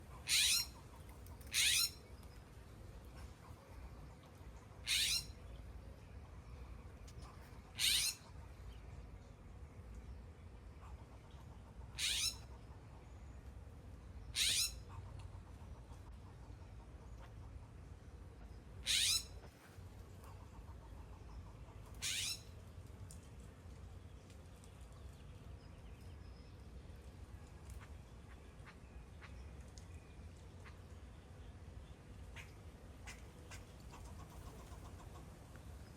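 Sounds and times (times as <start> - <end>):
faint high bird chirps: 4.8 - 5.6.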